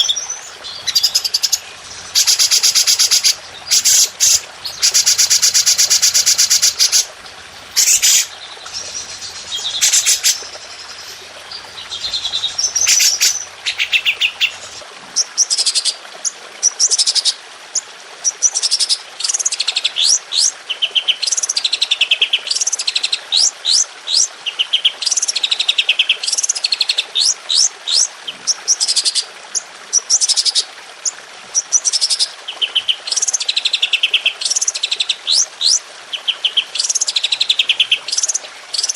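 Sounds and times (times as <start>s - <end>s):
songbird song with trills: 0.0s - 14.8s.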